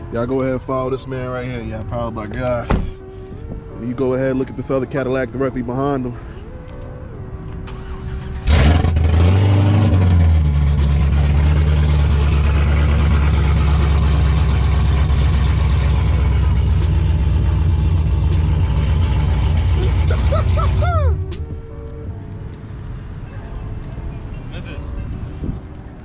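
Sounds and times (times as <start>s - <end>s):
car engine revving and idling: 7.6s - 21.6s.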